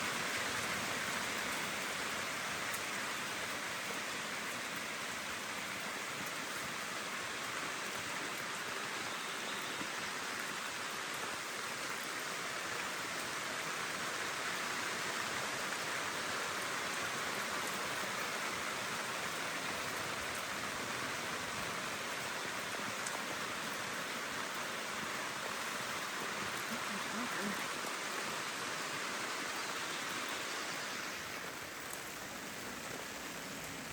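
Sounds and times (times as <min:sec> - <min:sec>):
steady rain falling: 0:00.0 - 0:33.9
raindrop ticks: 0:22.7 - 0:28.2, 0:31.7 - 0:33.9.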